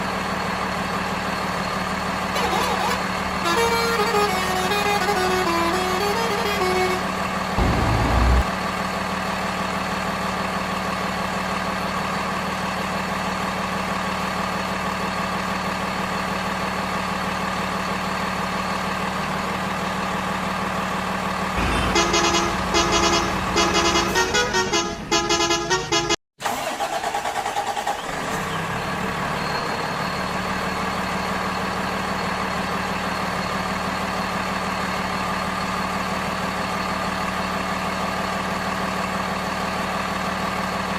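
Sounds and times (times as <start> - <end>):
vehicle engine drone: 0.0 - 26.1
short horn honks: 2.4 - 8.5, 21.6 - 26.2.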